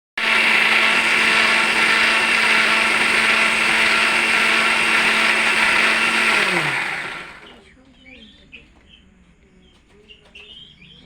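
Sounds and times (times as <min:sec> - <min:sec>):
small electric motor whirring: 0:00.2 - 0:07.6.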